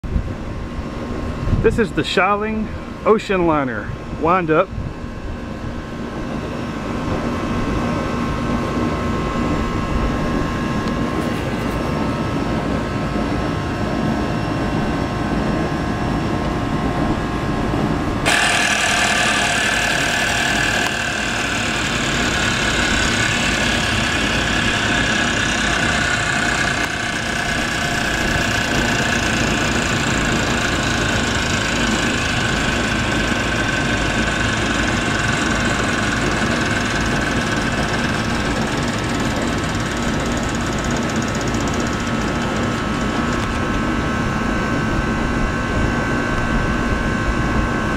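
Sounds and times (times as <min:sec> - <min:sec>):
air conditioner hum: 0:00.0 - 0:47.9
clockwork toy motor whirring: 0:18.2 - 0:43.6.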